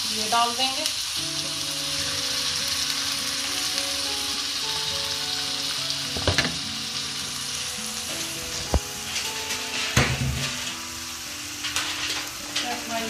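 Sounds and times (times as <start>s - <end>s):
chicken sizzling in hot oil: 0.0s - 13.0s
brief knock: 6.2s - 6.6s.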